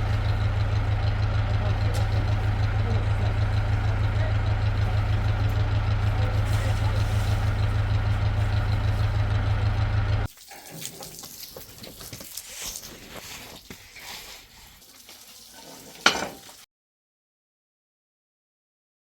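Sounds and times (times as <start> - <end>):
heavy engine humming: 0.0 - 10.3
rustling: 10.4 - 16.6.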